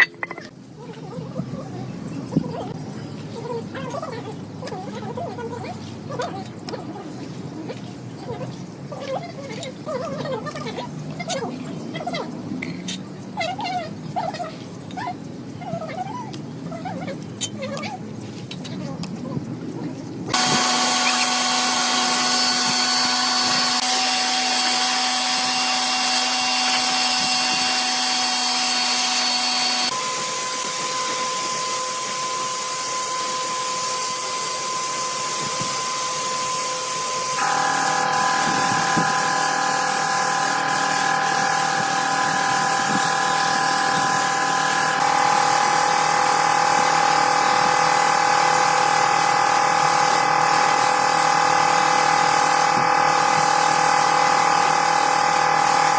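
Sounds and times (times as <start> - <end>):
electric power tool whining: 20.3 - 55.9.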